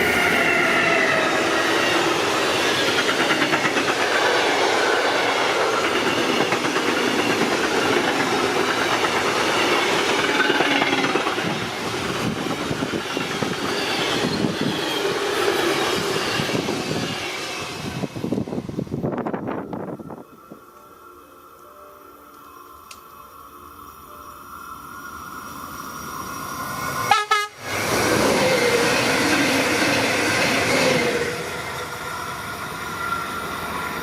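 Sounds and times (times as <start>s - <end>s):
freight train rolling past: 0.0s - 34.0s
wheels clattering on rails: 1.8s - 16.8s.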